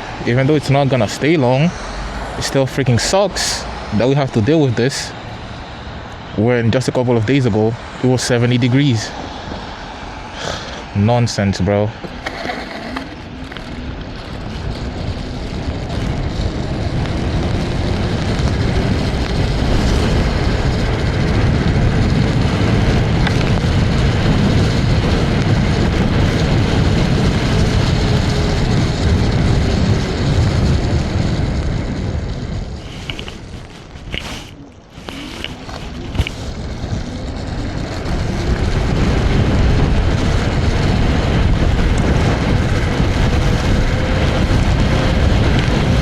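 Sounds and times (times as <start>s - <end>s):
wind rushing over microphone: 0.0s - 46.0s
tyres hissing on wet road: 9.2s - 11.1s.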